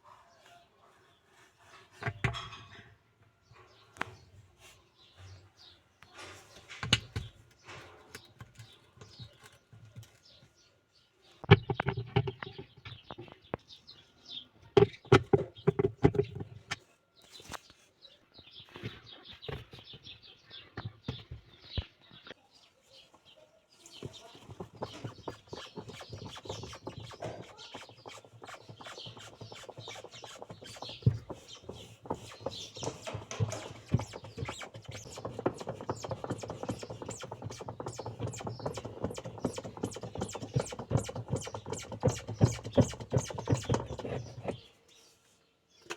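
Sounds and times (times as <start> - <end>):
rapid scraping and clicking: 24.0 - 44.7
tools knocking on plastic: 24.1 - 44.6.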